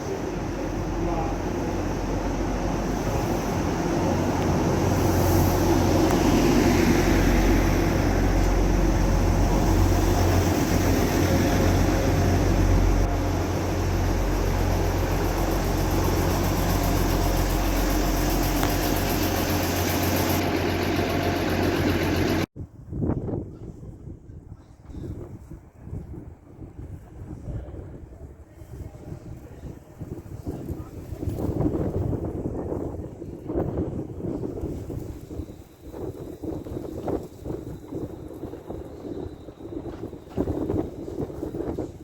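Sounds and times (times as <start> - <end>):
train humming and rumbling: 0.0 - 22.5, 31.6 - 42.0.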